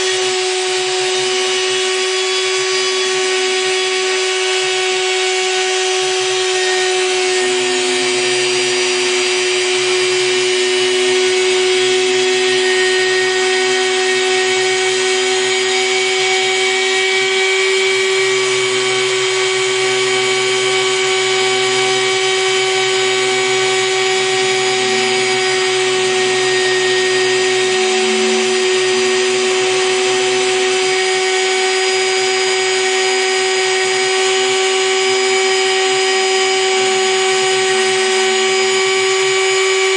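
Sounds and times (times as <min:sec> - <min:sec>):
router spindle whine: 0:00.0 - 0:39.9
low rumble: 0:24.1 - 0:30.7.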